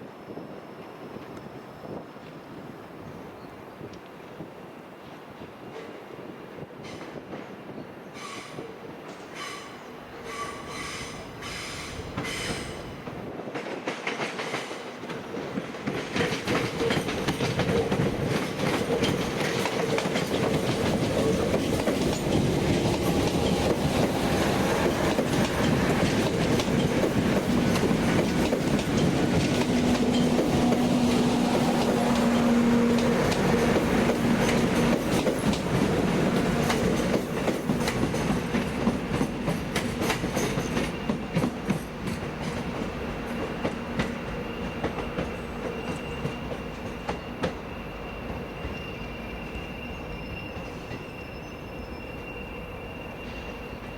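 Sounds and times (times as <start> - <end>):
train wheels clicking over rail joints: 8.2 - 48.8.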